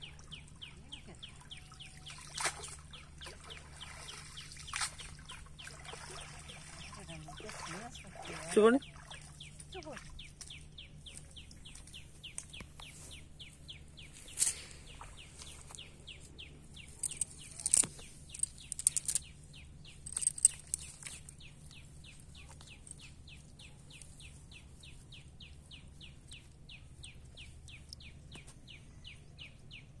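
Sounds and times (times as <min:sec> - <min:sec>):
bird chirping: 0:00.0 - 0:30.0
clicks and rustles of wet net: 0:16.8 - 0:19.3, 0:20.0 - 0:24.2.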